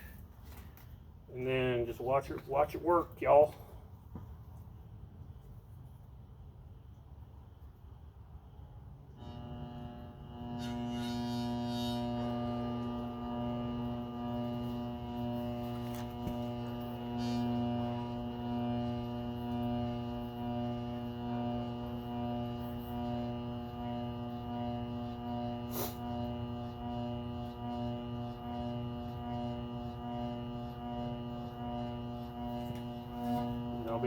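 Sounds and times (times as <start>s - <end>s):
electric motor hum and whine: 9.0s - 34.0s.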